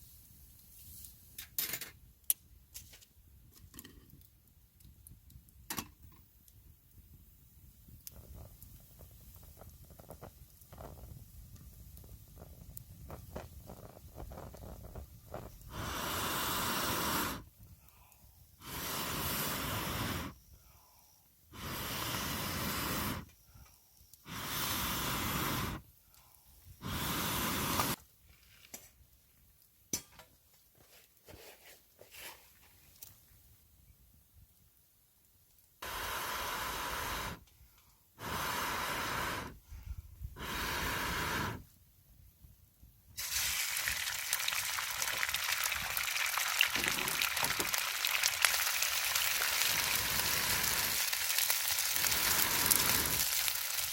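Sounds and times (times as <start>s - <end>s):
fire crackling: 0.0s - 30.1s, 32.5s - 53.9s
person blowing into fire: 7.9s - 26.0s, 26.6s - 28.0s, 35.8s - 37.5s, 38.2s - 41.8s, 43.2s - 53.9s.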